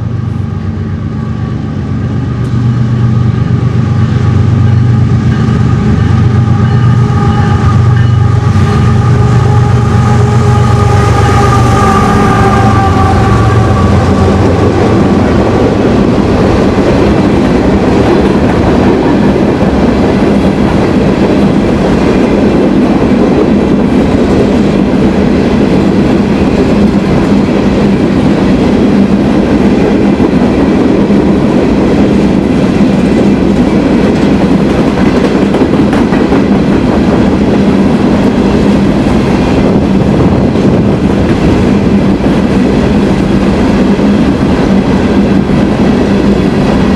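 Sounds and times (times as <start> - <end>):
train wheels clattering on rails: 2.1 - 46.9
locomotive horn: 5.6 - 15.8.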